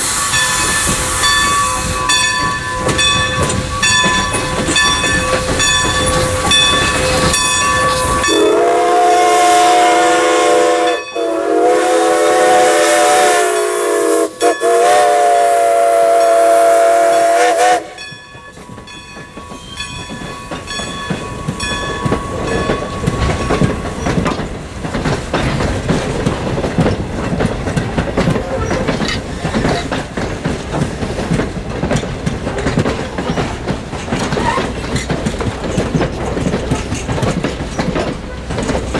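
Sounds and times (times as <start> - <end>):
steam locomotive whistle: 0.0 - 2.6, 5.1 - 18.1
train clattering over rail joints: 0.0 - 11.8, 16.0 - 38.9.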